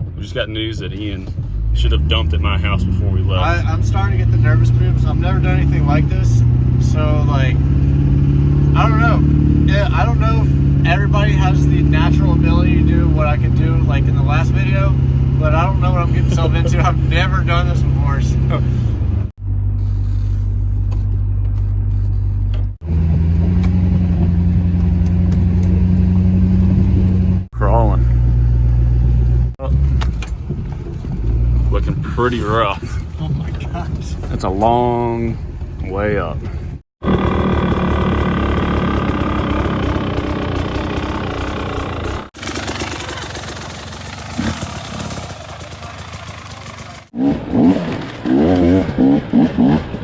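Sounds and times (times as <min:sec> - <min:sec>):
vehicle engine and road drone: 0:00.0 - 0:50.0
dirt bike engine running: 0:35.4 - 0:50.0.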